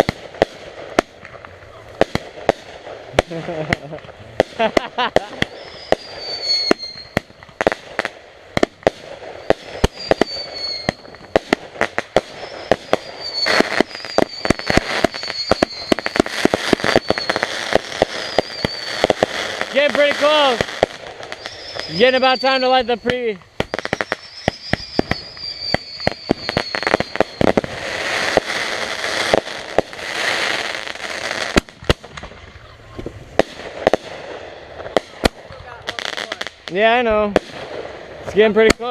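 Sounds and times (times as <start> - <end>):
fireworks bangs: 0.0 - 38.9
fireworks crackling hiss: 0.0 - 38.9
fireworks whistles: 0.0 - 38.9
firework whistle falling in pitch: 5.2 - 7.4, 9.4 - 11.5, 12.2 - 19.2, 21.4 - 28.5.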